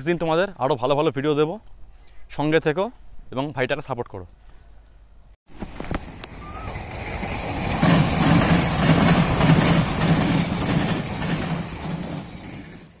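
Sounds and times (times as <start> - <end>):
train wheels rumbling and clattering: 5.8 - 13.0.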